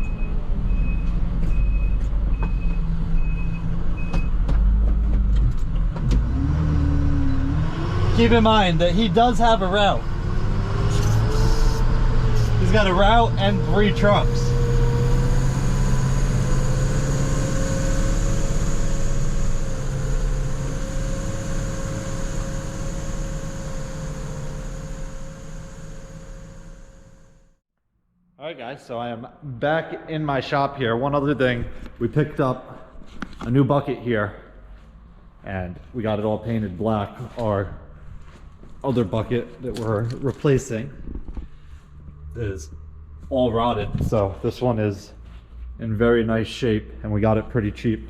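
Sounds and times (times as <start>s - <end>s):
truck backup alarm beeping: 0.0s - 4.4s
truck engine running: 6.4s - 27.5s.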